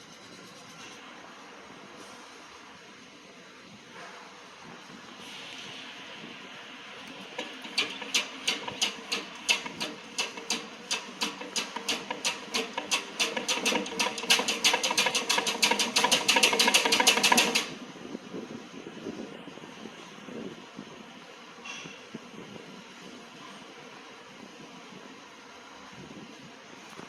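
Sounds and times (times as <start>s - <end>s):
ratchet wrench clicking: 7.4s - 17.8s.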